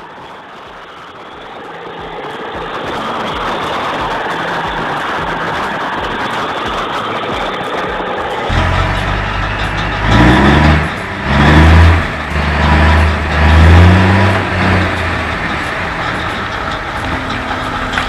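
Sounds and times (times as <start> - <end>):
heavy vehicle engine revving: 8.5 - 18.0.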